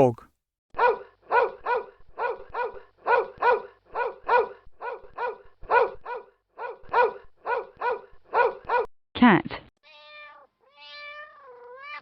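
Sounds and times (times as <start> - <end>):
dog barking: 0.8 - 8.9.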